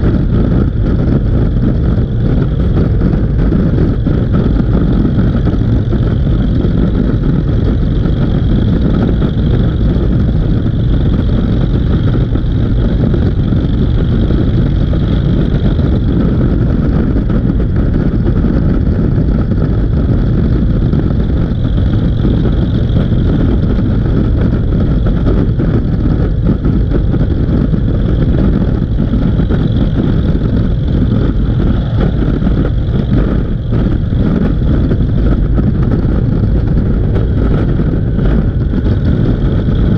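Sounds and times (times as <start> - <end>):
motorcycle running noise: 0.0 - 39.9.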